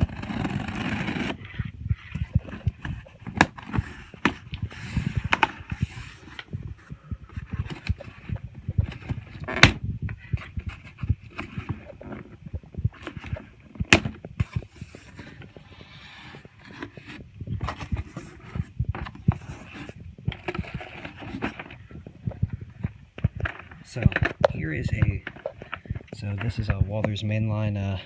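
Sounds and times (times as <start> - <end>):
cardboard box being opened: 0.0 - 1.5, 2.1 - 9.8, 10.4 - 12.4, 13.0 - 22.0
knocks taps and scrapes: 0.0 - 27.3.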